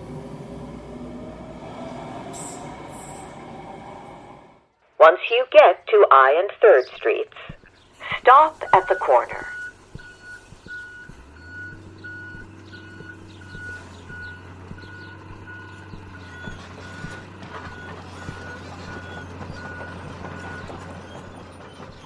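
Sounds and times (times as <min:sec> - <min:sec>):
diesel engine hum: 0:00.0 - 0:04.7, 0:06.2 - 0:22.0
reversing alarm beeping: 0:08.1 - 0:21.9.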